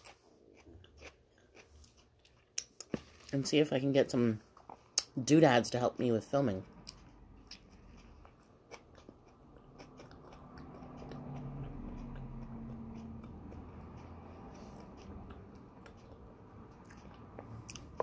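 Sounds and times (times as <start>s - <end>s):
person biting and chewing: 0.0s - 3.0s, 6.8s - 18.0s
low steady hum: 0.0s - 18.0s.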